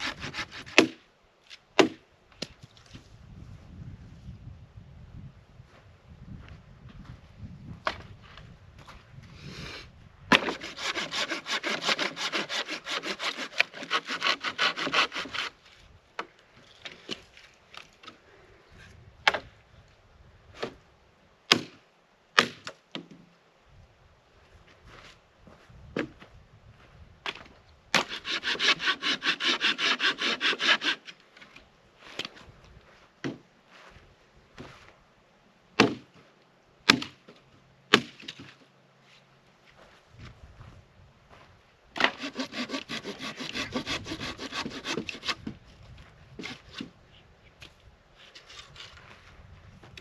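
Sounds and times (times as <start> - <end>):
hand saw cutting wood: 0.0 - 1.0, 10.3 - 15.8, 28.0 - 31.2, 42.0 - 45.5, 46.4 - 46.9.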